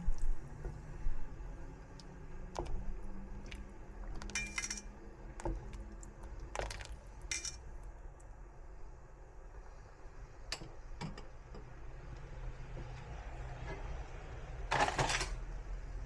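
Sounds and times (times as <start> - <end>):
dishes and utensils clinking: 4.3 - 4.9, 7.3 - 7.6, 14.7 - 15.4.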